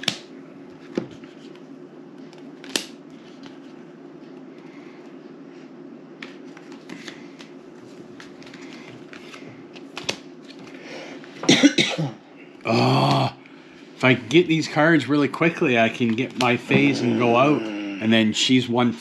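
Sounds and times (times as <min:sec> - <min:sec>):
playing cards clicking and slapping: 0:00.0 - 0:01.6, 0:02.2 - 0:04.4, 0:06.2 - 0:10.8, 0:16.0 - 0:17.0
low room hum: 0:00.0 - 0:19.0.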